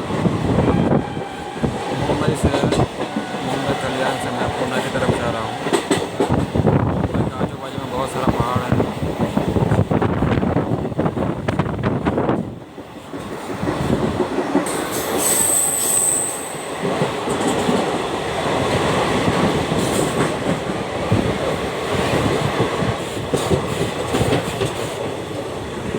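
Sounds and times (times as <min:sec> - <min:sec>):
high-pitched squeal: 0:15.2 - 0:16.6.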